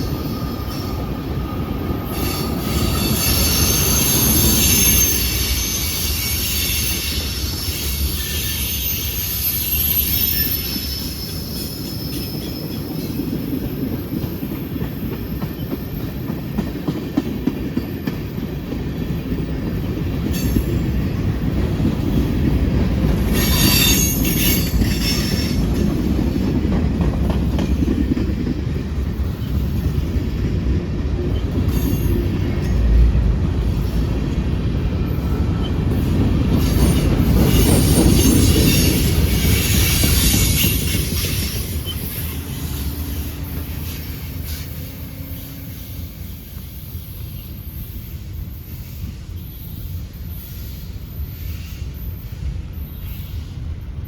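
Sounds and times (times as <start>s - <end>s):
wheel flanges squealing: 0.0s - 13.0s, 23.2s - 25.8s, 35.2s - 52.1s
freight train rumbling: 0.0s - 54.0s.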